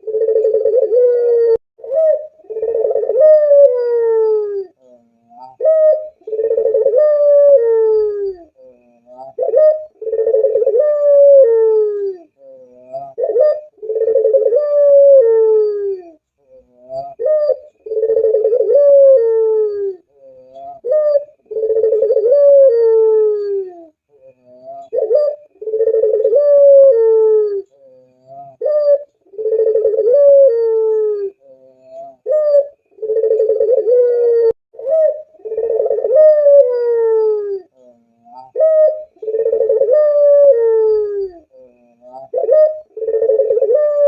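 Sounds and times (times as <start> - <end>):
dove cooing: 0.0 - 44.0.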